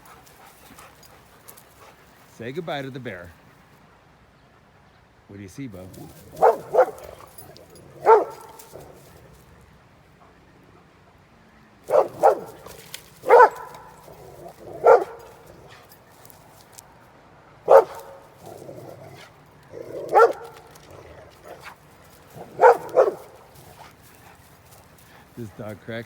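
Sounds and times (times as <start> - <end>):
dog barking: 6.0 - 9.1, 11.9 - 16.0, 17.7 - 23.9.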